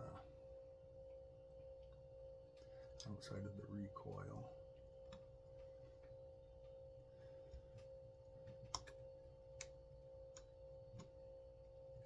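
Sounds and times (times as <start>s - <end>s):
steady hum: 0.0s - 12.0s
faint clicks of small parts: 7.5s - 9.0s.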